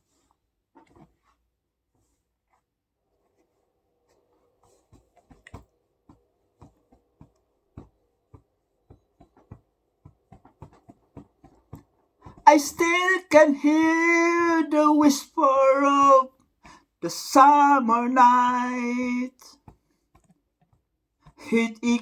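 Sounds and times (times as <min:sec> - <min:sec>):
faint clicks and taps: 0:04.1 - 0:12.5, 0:19.5 - 0:21.5.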